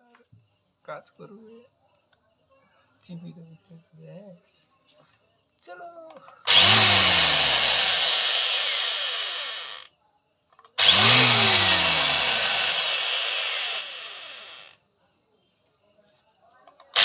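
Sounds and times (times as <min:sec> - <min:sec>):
electric angle grinder running: 0:06.5 - 0:09.8, 0:10.8 - 0:14.7.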